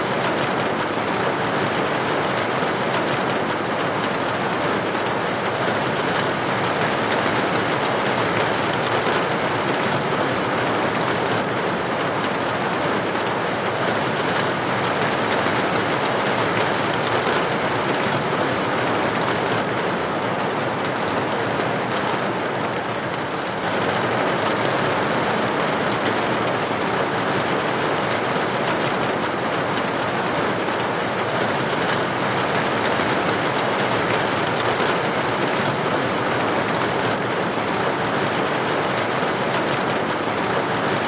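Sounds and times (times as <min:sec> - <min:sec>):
rain pattering on a window: 0:00.0 - 0:41.0.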